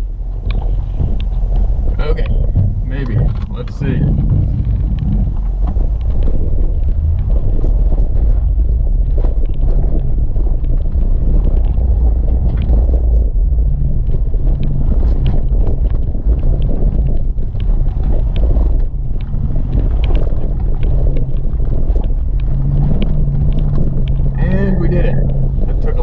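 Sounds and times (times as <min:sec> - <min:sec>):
engine running under load: 0:00.0 - 0:26.0.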